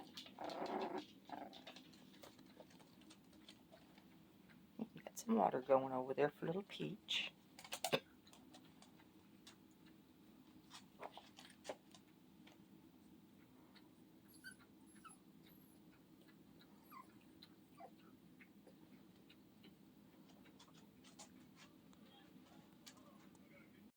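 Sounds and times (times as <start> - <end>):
puppies whimpering: 14.3 - 15.9, 16.8 - 18.1.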